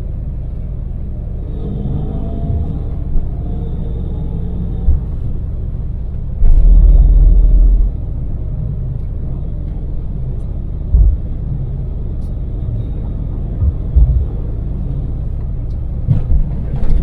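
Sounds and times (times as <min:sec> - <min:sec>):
van engine and tyre rumble: 0:00.0 - 0:17.0
heavy low thumps: 0:01.2 - 0:08.6, 0:10.7 - 0:12.0, 0:13.2 - 0:15.3.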